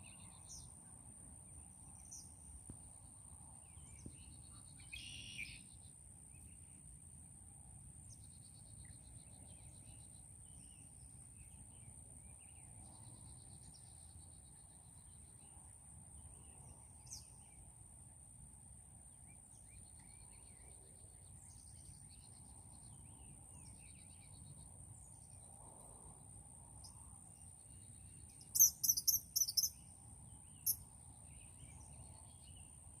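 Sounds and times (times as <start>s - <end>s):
small birds chirping: 26.8s - 32.8s
sharp high bird chirps: 28.3s - 29.8s
thin high tone: 28.6s - 29.7s.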